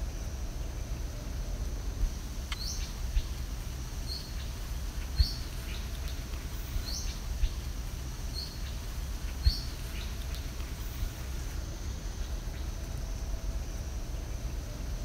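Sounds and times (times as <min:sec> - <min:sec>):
wind rumble on microphone: 0:00.0 - 0:15.0
bird chirping: 0:02.5 - 0:03.4, 0:04.0 - 0:11.3.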